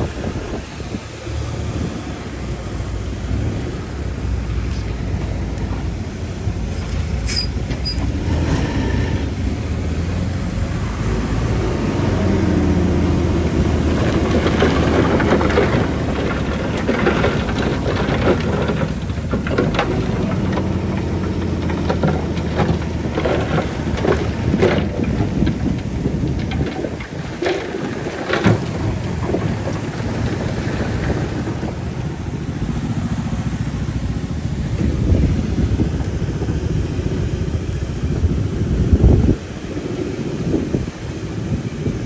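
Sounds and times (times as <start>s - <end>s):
bulldozer diesel engine under load: 0.0s - 42.0s
steel tracks clanking and squealing: 3.4s - 33.1s.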